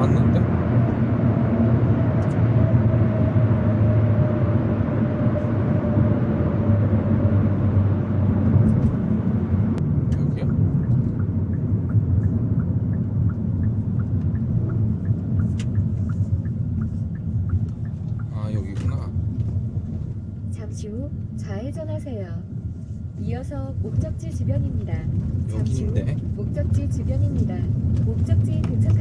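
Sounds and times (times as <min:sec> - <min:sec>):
car engine and road noise: 0:00.0 - 0:29.0
turn signal ticking: 0:09.4 - 0:21.6, 0:23.7 - 0:29.0.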